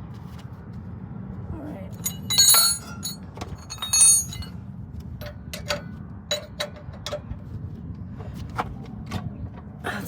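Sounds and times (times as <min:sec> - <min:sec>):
clamp clicking metallically: 0:02.0 - 0:04.5.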